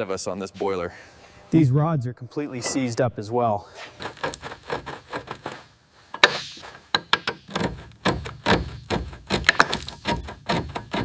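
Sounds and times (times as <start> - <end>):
workshop knocks and clanks: 6.2 - 11.0.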